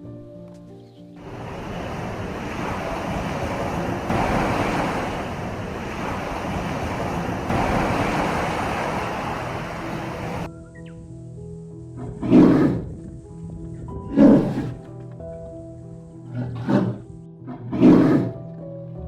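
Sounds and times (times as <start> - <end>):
surf rushing: 1.2 - 10.5.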